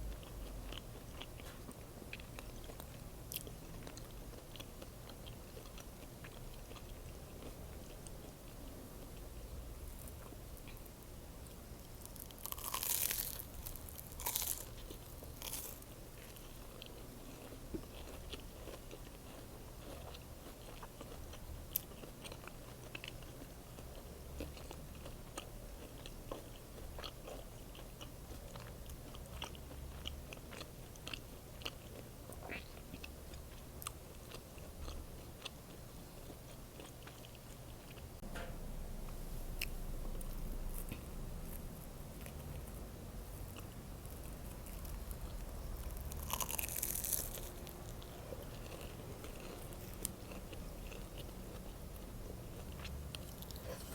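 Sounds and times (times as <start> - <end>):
chewing with wet clicks: 0.1 - 9.2, 10.0 - 38.0, 42.2 - 53.9
crunchy sandwich bites: 11.9 - 23.3, 43.5 - 51.7
low hum: 38.2 - 46.9.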